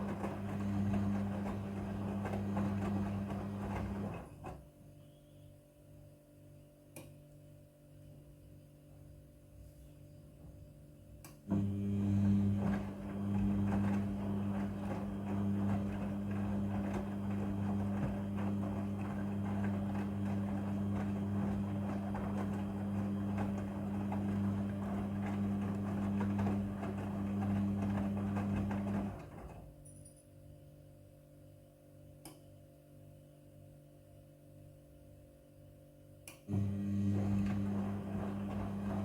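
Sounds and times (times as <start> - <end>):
laundry tumbling in drum: 0.0 - 4.5, 12.2 - 29.6
washing machine motor humming: 0.0 - 4.7, 11.4 - 29.8, 36.4 - 39.0.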